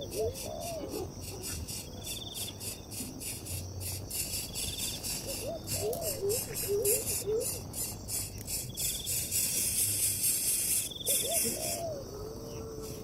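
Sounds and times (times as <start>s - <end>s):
insects chirping chorus: 0.0s - 13.0s
low wavering animal calls: 11.0s - 13.0s.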